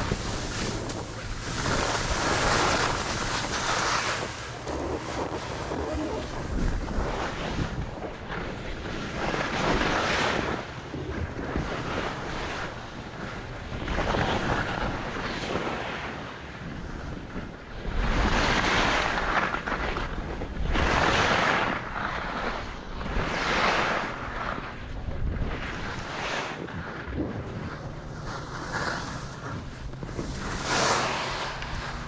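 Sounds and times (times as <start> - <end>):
ski edges scraping snow: 0.0 - 7.8, 18.0 - 24.6, 27.2 - 32.0
wind on microphone: 0.0 - 32.0.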